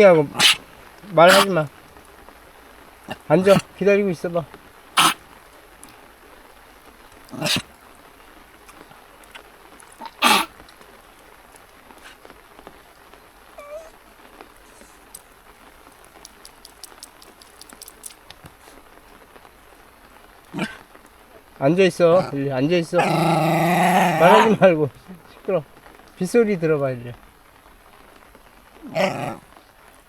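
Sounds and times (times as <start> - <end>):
dog whining: 0.0 - 1.6, 3.0 - 3.8, 5.0 - 5.2, 7.2 - 7.8, 8.7 - 10.6, 13.4 - 15.2, 20.5 - 20.8, 23.0 - 24.6, 28.8 - 29.6
dog barking: 0.0 - 1.7, 3.0 - 3.8, 5.0 - 6.0, 7.2 - 7.8, 8.7 - 10.6, 12.0 - 12.2, 13.6 - 14.1, 20.5 - 20.8, 23.0 - 24.7, 28.8 - 29.5
rain drops ticking: 0.0 - 30.0.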